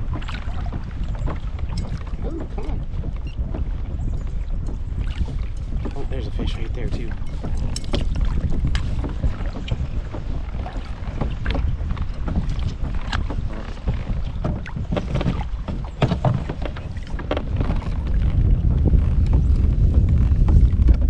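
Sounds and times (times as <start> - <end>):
waves slapping plastic kayak hull: 0.0 - 21.0
wind buffeting microphone: 0.0 - 21.0.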